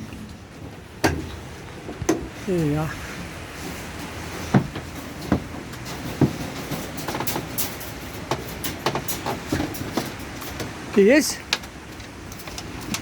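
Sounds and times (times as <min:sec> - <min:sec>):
sharp knocks: 0:01.0 - 0:01.4, 0:04.5 - 0:07.6.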